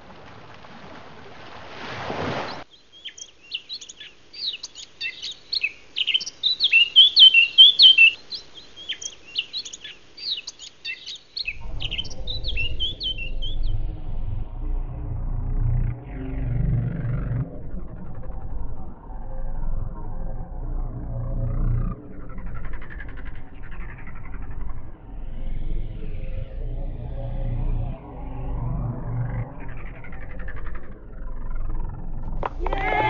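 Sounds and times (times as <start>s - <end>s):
songbirds chirping: 2.5s - 18.0s
low rumble: 11.5s - 33.0s.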